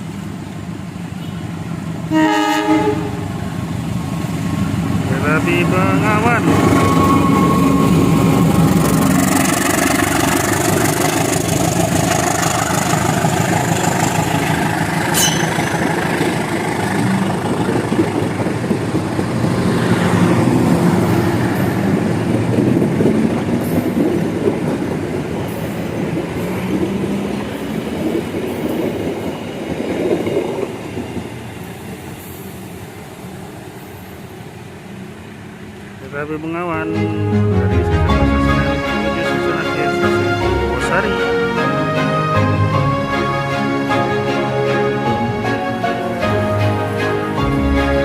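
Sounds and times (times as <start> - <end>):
train rumbling past: 0.0 - 48.0
high squeal: 6.6 - 8.4, 15.0 - 16.4.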